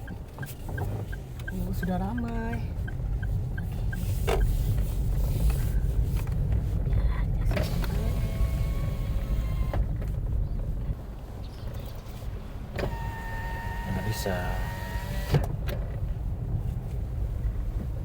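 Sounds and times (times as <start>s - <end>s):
car interior rumble: 0.0s - 18.0s.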